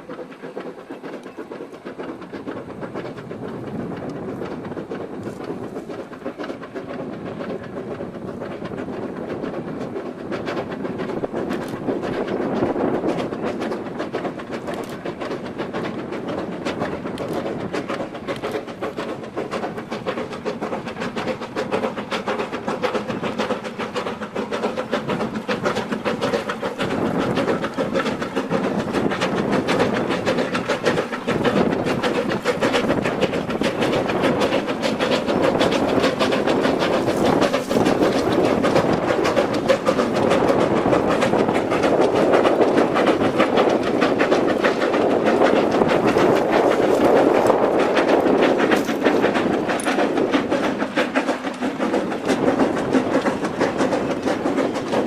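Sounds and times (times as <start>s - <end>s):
rapid clicking: 0.0s - 55.0s
train wheels on rails: 0.0s - 55.0s.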